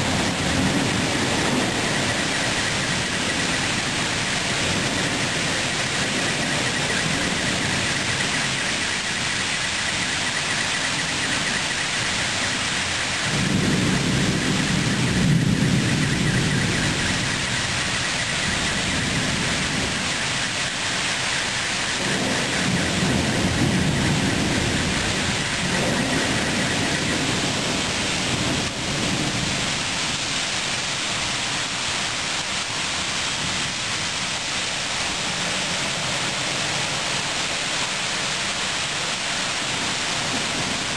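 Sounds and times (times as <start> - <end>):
rolling thunder: 0.0 - 31.6
heavy rain hiss: 0.0 - 40.9.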